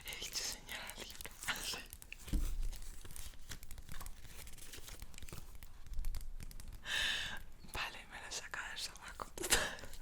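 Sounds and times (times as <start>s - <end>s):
paper tearing and crinkling: 1.1s - 5.8s.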